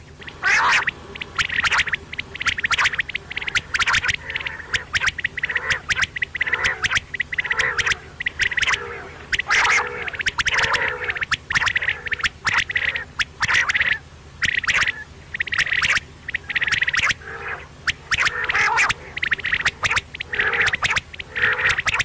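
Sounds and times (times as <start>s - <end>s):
low hum: 0.0s - 22.0s
quail calling: 0.0s - 22.0s.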